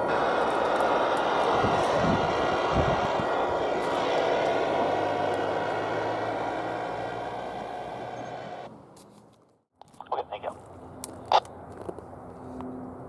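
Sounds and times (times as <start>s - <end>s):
train passing rumble: 0.0s - 9.0s.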